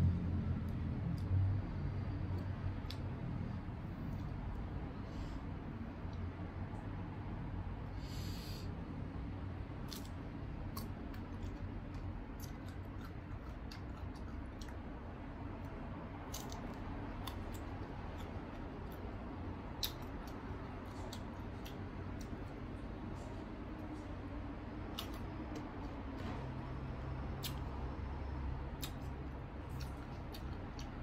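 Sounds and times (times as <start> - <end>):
steady low hum: 0.0 - 31.0
crunching unripe mango: 16.2 - 22.5.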